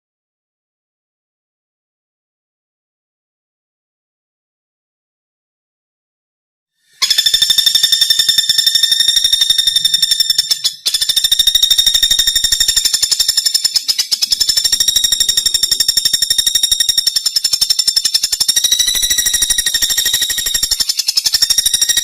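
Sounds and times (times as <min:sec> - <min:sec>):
woodpecker rattling trill: 0:06.9 - 0:22.0.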